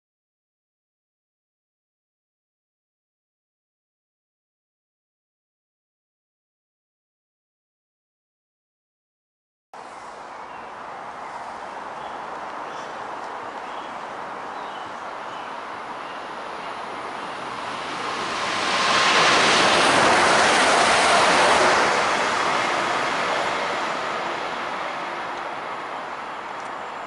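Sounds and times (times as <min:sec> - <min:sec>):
train passing at speed: 0:09.8 - 0:27.0.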